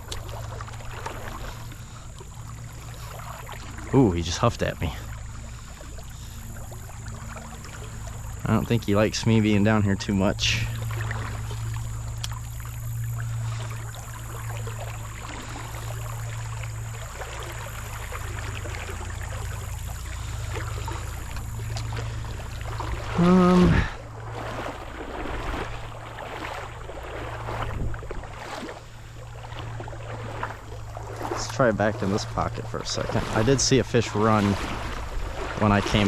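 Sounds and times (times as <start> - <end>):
wading through water: 0.0 - 36.0.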